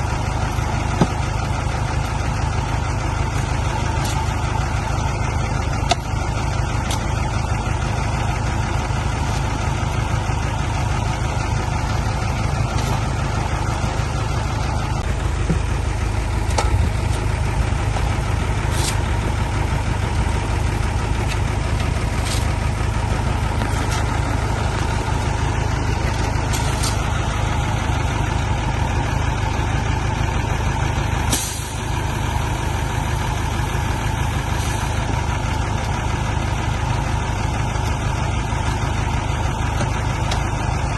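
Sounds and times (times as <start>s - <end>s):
diesel engine rumbling: 0.0s - 40.9s
short hisses: 31.3s - 31.8s.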